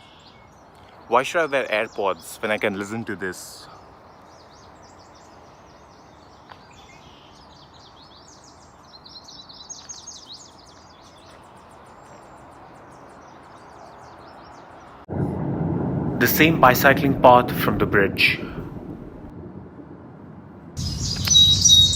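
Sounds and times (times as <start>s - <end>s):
steady background hiss: 0.0s - 10.9s, 16.2s - 18.8s
small birds chirping: 0.0s - 15.1s, 20.8s - 21.9s.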